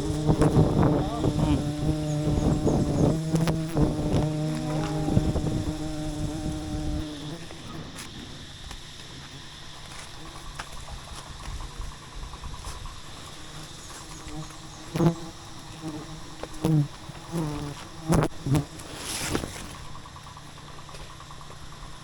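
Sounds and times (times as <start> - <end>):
bee buzzing past microphone: 0.0 - 8.6, 13.4 - 19.8
honeybees buzzing around hive: 0.0 - 12.0, 12.6 - 22.0
rustling hiss: 0.0 - 22.0.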